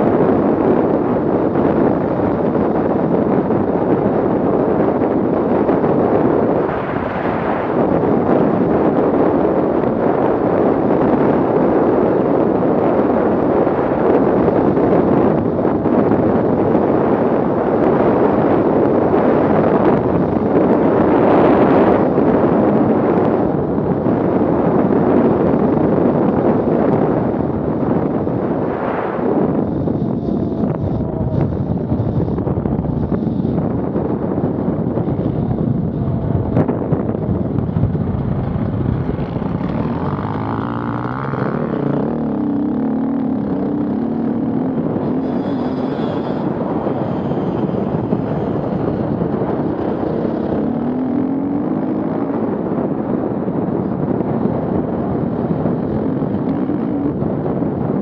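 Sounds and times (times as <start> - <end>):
off-road vehicle engines running: 0.0 - 58.0
engine revving: 35.0 - 57.5.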